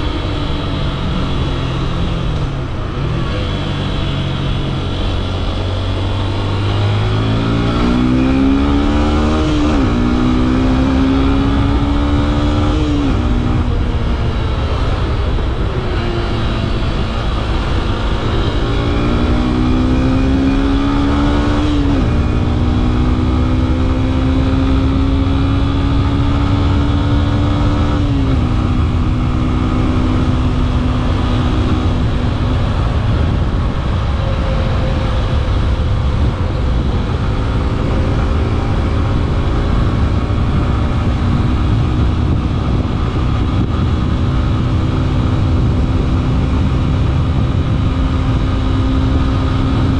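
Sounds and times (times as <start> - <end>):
motorcycle engine accelerating: 0.0 - 49.9
wind and road noise: 0.0 - 49.9.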